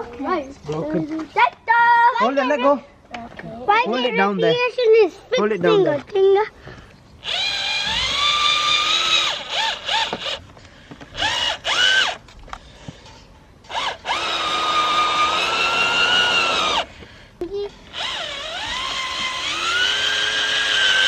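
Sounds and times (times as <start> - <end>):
power drill whining: 7.2 - 12.2, 13.7 - 16.9, 17.9 - 21.0.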